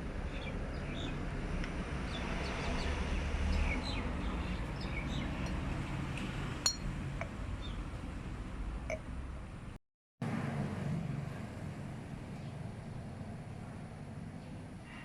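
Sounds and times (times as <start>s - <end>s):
small birds chirping: 0.2s - 1.2s, 2.1s - 5.6s.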